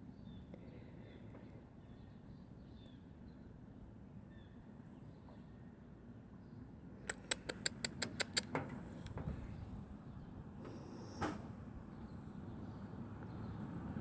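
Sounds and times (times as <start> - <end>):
squirrel chipping: 7.0 - 8.6.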